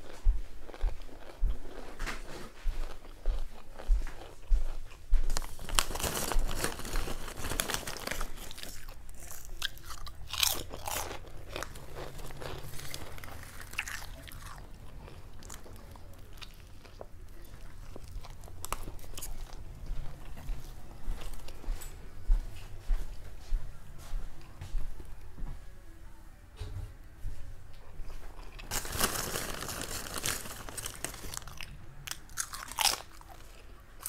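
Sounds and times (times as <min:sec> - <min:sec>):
crunchy chewing: 0:00.6 - 0:21.6, 0:28.0 - 0:34.0
paper wrapper crinkling: 0:05.3 - 0:09.8, 0:28.6 - 0:33.5.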